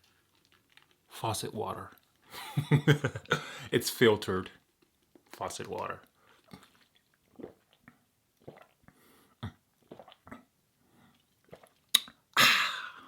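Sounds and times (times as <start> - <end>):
person gulping water: 2.0 - 3.7, 5.1 - 13.0.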